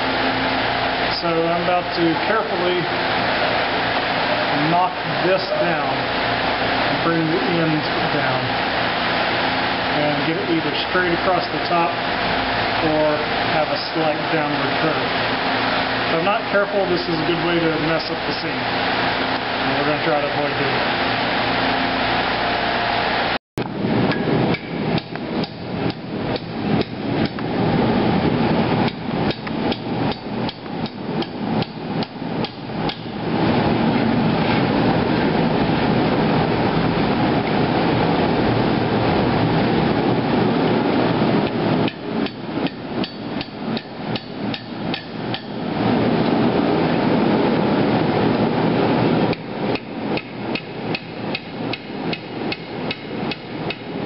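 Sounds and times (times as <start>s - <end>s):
steady rushing noise: 0.0s - 54.0s
hammer striking steel on anvil: 41.9s - 45.6s.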